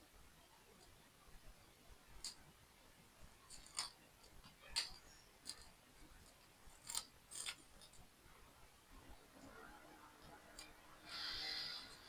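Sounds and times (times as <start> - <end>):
plastic toy blocks clicking: 3.5 - 8.1.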